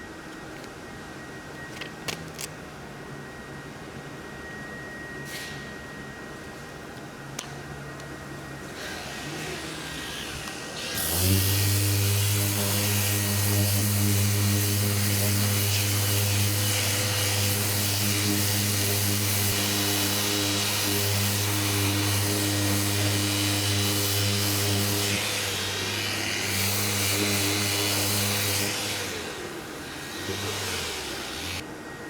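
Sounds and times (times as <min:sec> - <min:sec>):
electric power tool running: 0:08.7 - 0:31.6.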